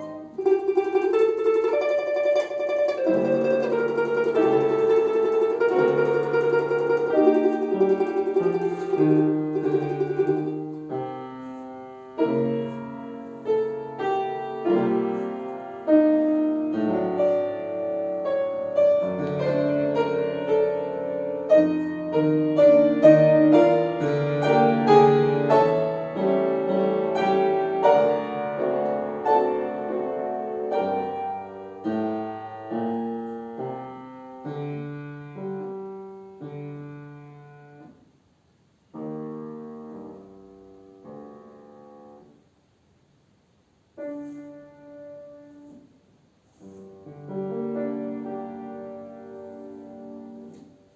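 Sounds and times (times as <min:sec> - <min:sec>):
plucked string tremolo: 0:00.0 - 0:10.8
piano playing folk song: 0:00.0 - 0:38.0, 0:38.9 - 0:42.4, 0:43.9 - 0:50.9.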